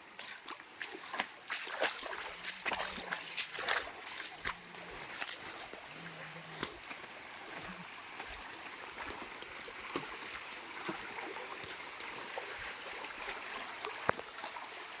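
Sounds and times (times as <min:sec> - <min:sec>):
small water splashes: 0:00.0 - 0:15.0
stream flowing: 0:00.0 - 0:15.0.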